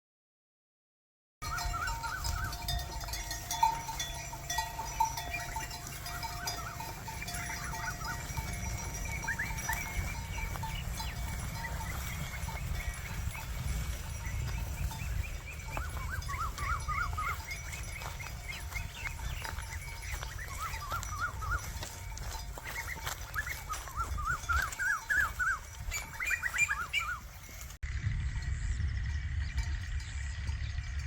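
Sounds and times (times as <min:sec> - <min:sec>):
short chirping calls: 0:01.4 - 0:27.7
steady ringing tones: 0:01.4 - 0:31.0
steady low rumble: 0:02.7 - 0:20.2, 0:27.8 - 0:31.0.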